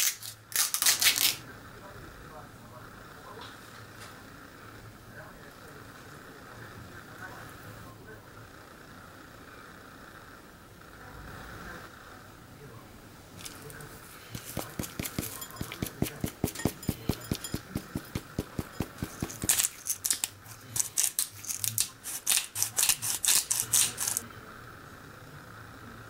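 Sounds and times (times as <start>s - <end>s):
pepper mill grinding: 0.0s - 1.4s, 13.4s - 24.2s
container of powder shaken: 14.3s - 24.2s.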